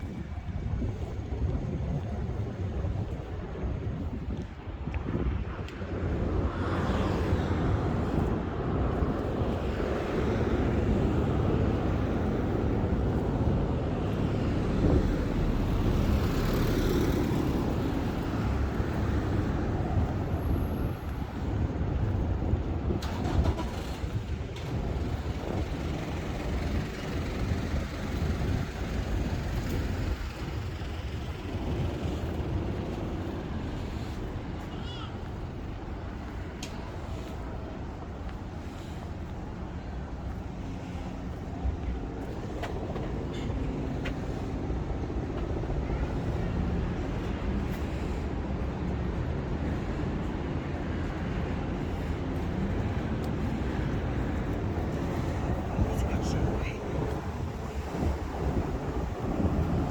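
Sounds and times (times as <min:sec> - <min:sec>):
road traffic noise: 0:00.0 - 0:59.9
vehicle passing by: 0:09.1 - 0:20.5.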